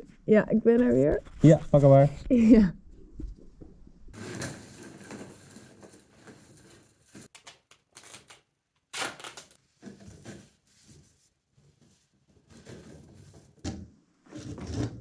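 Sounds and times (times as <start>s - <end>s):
rustling and knocking of handling: 3.2s - 7.8s, 9.6s - 13.9s.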